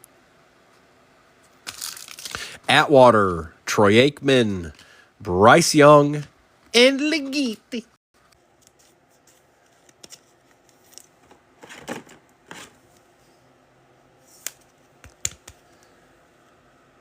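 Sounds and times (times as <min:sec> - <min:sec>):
cards sliding swishes: 0:14.2 - 0:15.9.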